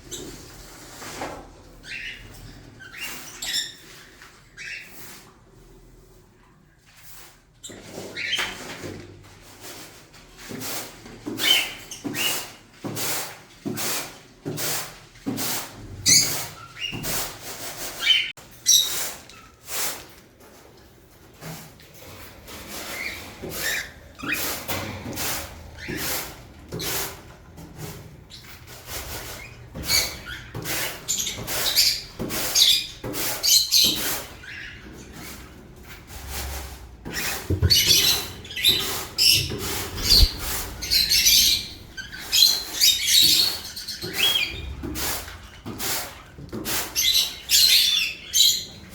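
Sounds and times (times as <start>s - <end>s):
birds chirping and squawking: 1.6s - 5.7s, 11.2s - 12.7s, 16.0s - 19.6s, 21.9s - 48.9s.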